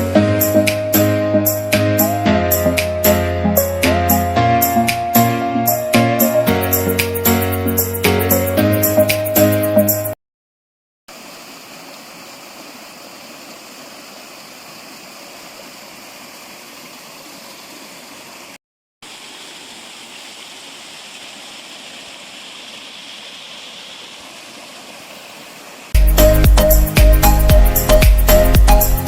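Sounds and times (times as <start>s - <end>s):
stream water flowing: 11.1s - 29.0s.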